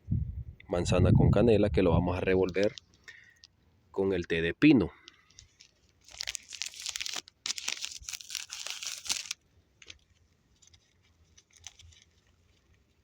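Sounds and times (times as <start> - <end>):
wrapper crinkling and tearing: 2.4 - 3.5, 5.1 - 13.0.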